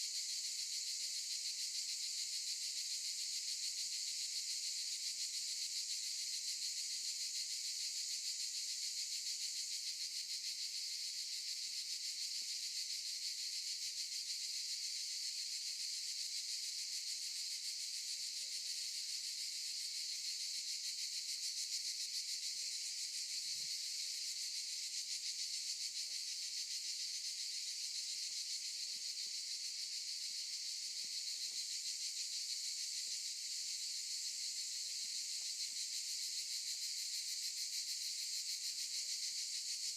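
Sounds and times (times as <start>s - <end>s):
cicadas buzzing: 21.5s - 38.6s.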